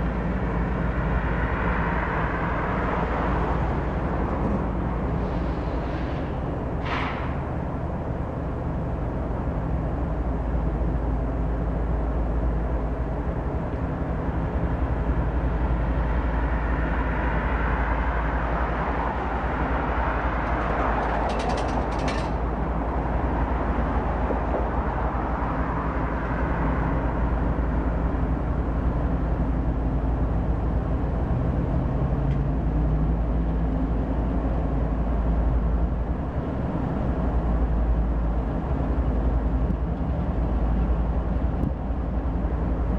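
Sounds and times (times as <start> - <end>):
deep train engine rumble: 0.0 - 42.9
rolling hiss of train: 4.4 - 7.8.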